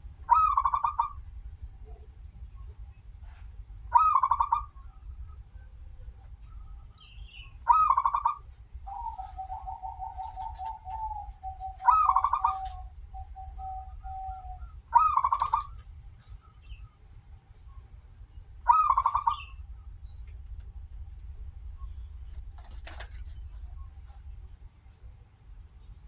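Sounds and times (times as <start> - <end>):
dove cooing: 0.3 - 1.2, 7.7 - 15.9.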